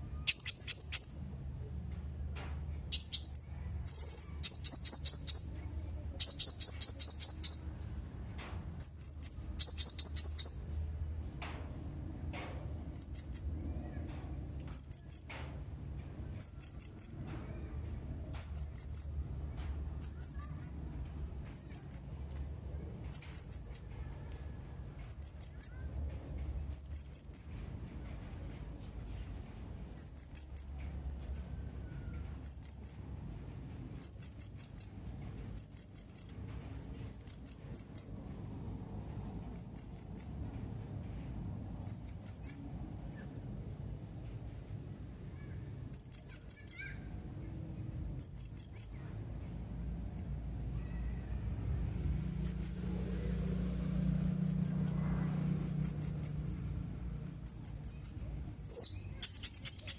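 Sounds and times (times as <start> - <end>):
faint low hum: 0.0 - 59.9
parrot high trilled chirps: 0.2 - 1.2, 2.9 - 5.5, 6.2 - 7.7, 8.8 - 10.6, 13.0 - 13.6, 18.4 - 19.2, 20.0 - 20.8, 21.5 - 22.2, 23.2 - 24.0, 41.9 - 42.8, 45.9 - 47.1, 57.2 - 59.9.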